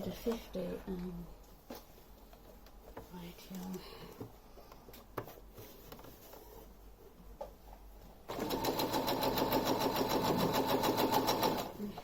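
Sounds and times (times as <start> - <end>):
sewing machine stitching: 8.3 - 11.8.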